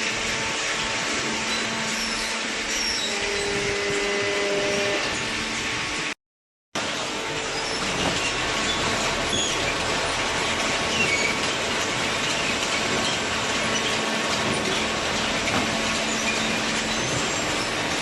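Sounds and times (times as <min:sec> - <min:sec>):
baler machine running: 0:06.8 - 0:18.0.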